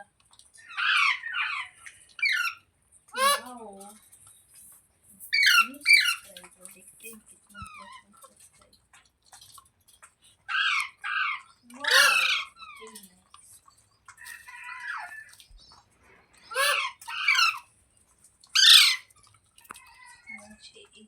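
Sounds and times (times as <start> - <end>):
parrot screeching: 0.6 - 2.6, 3.2 - 3.5, 5.3 - 6.3, 10.5 - 12.9, 16.5 - 17.7, 18.6 - 19.1
parrot chattering: 0.6 - 3.6, 5.2 - 6.3, 10.4 - 13.0, 16.5 - 17.7, 18.6 - 19.1.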